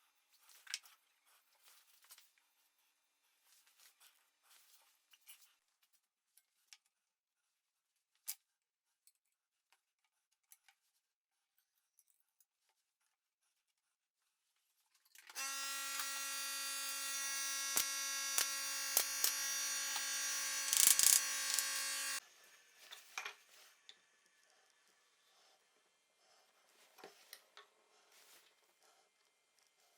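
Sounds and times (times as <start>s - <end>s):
power tool motor running: 15.4s - 22.2s
sharp clicks: 17.7s - 22.2s.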